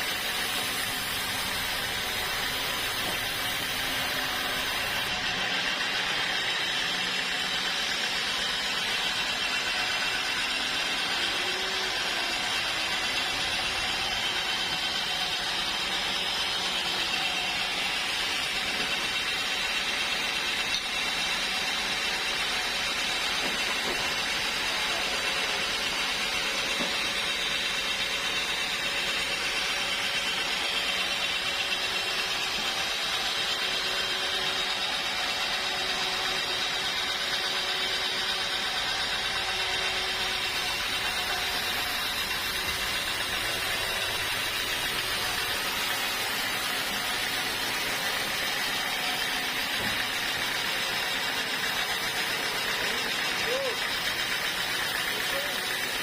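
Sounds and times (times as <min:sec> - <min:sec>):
sawmill saw whining through wood: 0:00.0 - 0:56.0.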